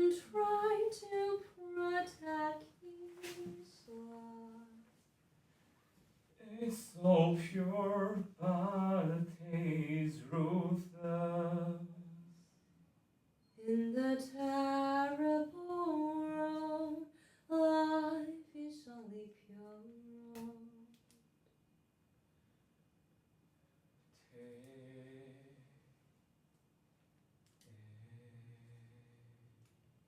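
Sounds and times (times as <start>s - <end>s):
person singing wordless melody: 6.4s - 12.4s.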